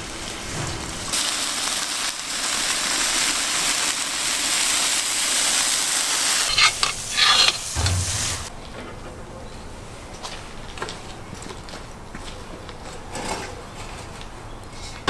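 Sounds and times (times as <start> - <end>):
meat sizzling in a pan: 1.1 - 8.5.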